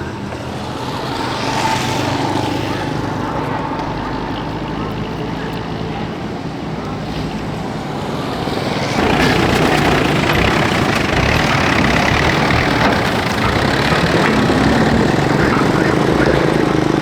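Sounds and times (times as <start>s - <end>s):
motor running loudly: 8.0s - 17.0s.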